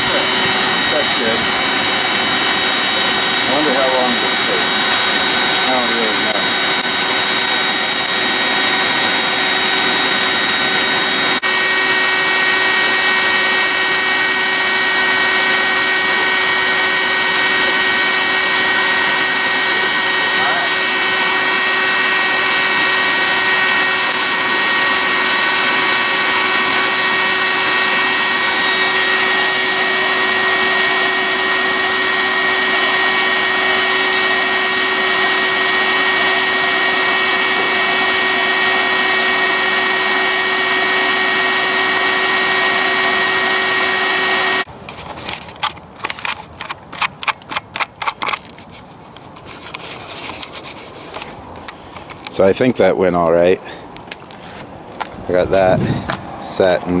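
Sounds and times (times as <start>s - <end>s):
electric blower whining: 0.0s - 48.4s, 49.4s - 57.0s
hot blade crackling in oil: 0.1s - 10.1s.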